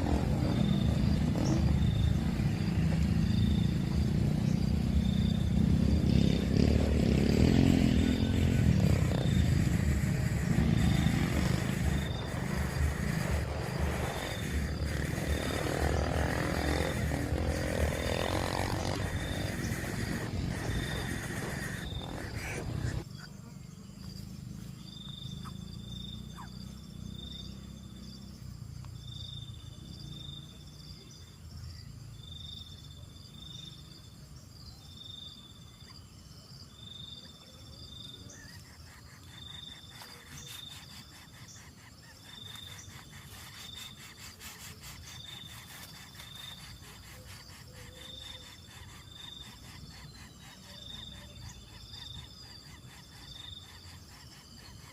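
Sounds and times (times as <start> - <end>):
insects chirping: 0.0 - 54.9
low background rumble: 7.9 - 23.1.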